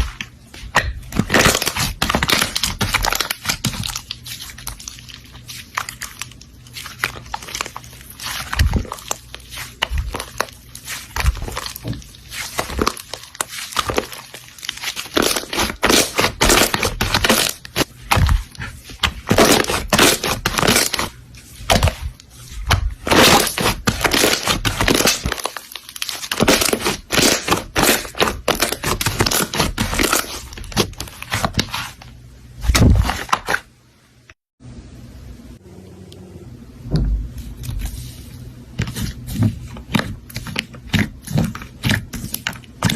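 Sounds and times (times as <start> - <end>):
slime crackling and popping: 1.2 - 31.9.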